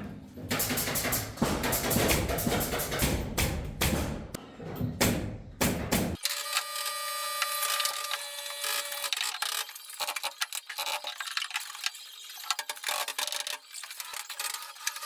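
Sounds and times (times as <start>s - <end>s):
mechanical clicking and rattling: 0.5s - 4.4s, 8.9s - 15.0s.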